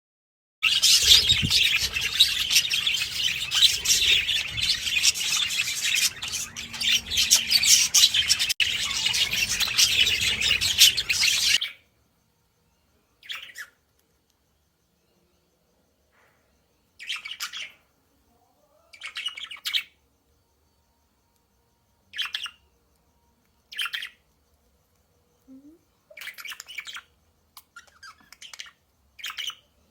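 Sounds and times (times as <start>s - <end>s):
budgerigars chattering: 0.6s - 11.6s.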